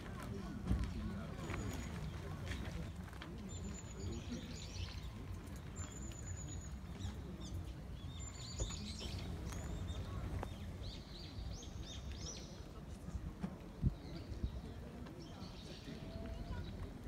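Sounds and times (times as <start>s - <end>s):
small birds chirping: 1.2s - 12.8s.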